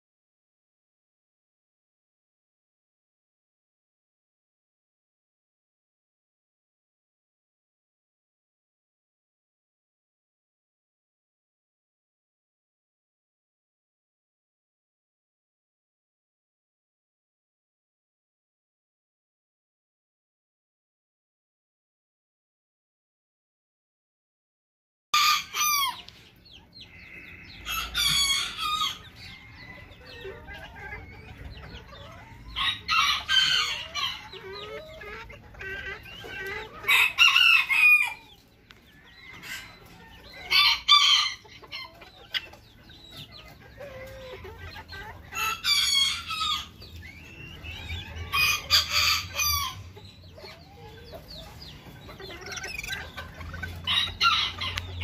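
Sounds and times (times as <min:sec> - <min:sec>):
roosters crowing: 0:25.2 - 0:26.1, 0:26.8 - 0:31.2, 0:32.3 - 0:34.8, 0:36.2 - 0:42.8, 0:45.4 - 0:46.9, 0:47.6 - 0:50.0, 0:52.2 - 0:55.0
hens clucking: 0:25.2 - 0:55.0.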